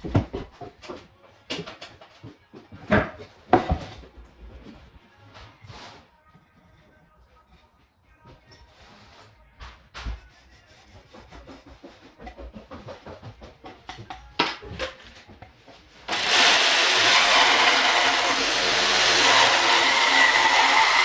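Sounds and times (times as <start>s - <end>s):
power tool running: 16.1s - 21.0s.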